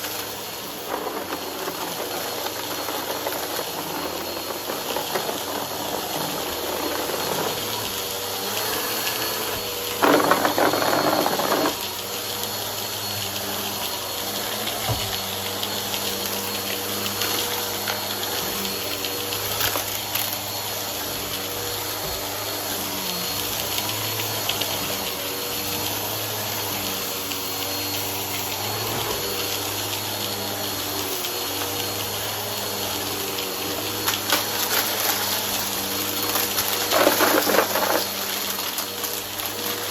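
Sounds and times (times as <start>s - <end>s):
vacuum cleaner running: 0.0s - 39.9s
debris crunching in vacuum: 33.7s - 39.9s.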